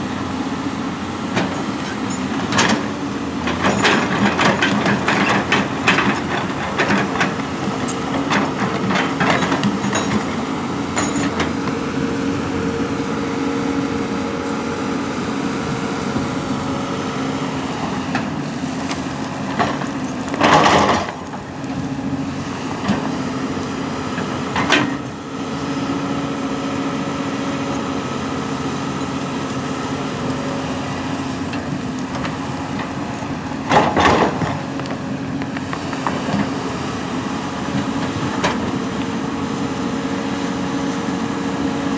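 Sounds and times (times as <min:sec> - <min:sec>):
heavy machine engine running: 0:00.0 - 0:41.9
clanks and knocks: 0:03.4 - 0:11.8, 0:33.7 - 0:36.5.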